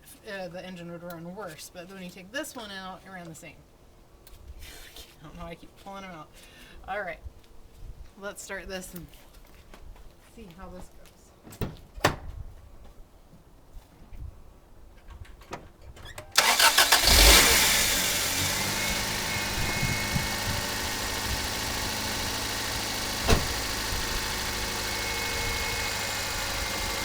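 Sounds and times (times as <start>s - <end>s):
starter cranking engine: 16.3s - 27.0s
car engine idling: 16.4s - 27.0s.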